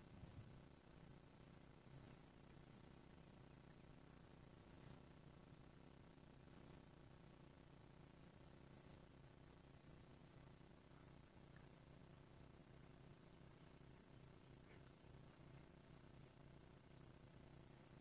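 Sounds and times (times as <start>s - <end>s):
small bird chirping: 1.7s - 5.2s, 6.4s - 7.2s, 8.1s - 18.0s.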